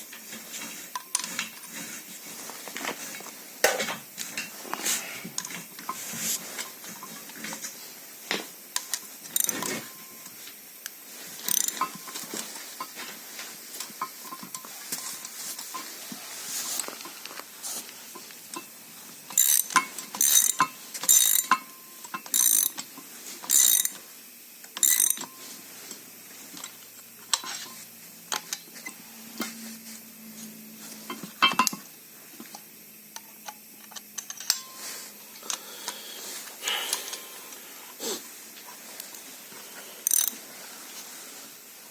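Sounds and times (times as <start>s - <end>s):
metal tools clinking: 11.4s - 13.0s, 19.3s - 22.8s, 33.8s - 34.9s.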